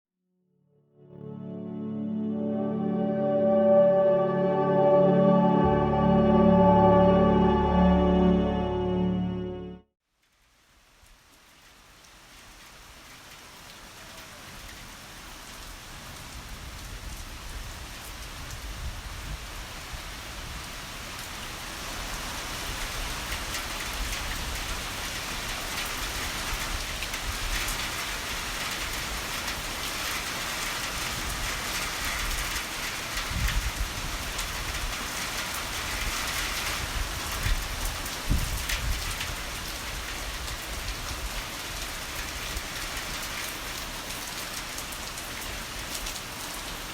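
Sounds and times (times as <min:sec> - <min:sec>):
heavy rain: 0:10.4 - 0:46.9.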